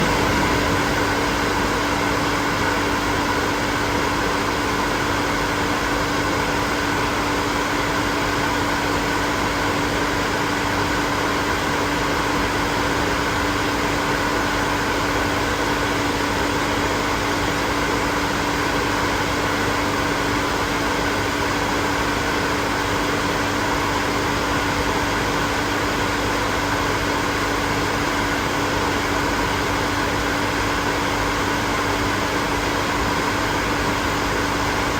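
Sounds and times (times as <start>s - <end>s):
hair dryer running: 0.0s - 2.3s.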